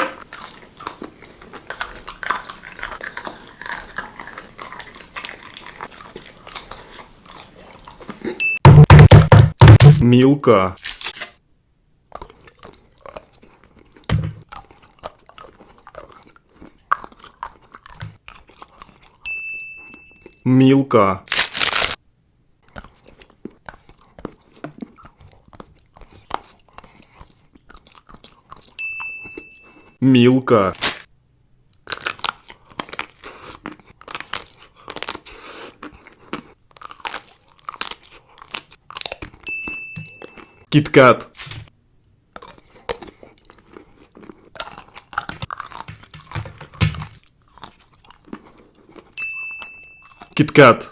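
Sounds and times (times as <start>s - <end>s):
chocolate crunching: 0.0s - 8.4s, 31.7s - 39.5s, 42.3s - 50.9s
wet chewing clicks: 0.0s - 8.4s, 12.1s - 19.3s, 22.6s - 28.8s, 31.7s - 40.7s, 42.0s - 50.9s.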